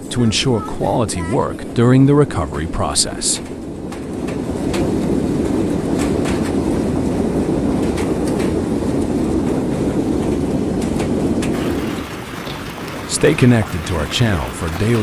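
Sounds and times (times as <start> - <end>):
hail and heavy rain pounding: 3.4 - 15.0
hailstones cracking on hard surfaces: 11.4 - 15.0.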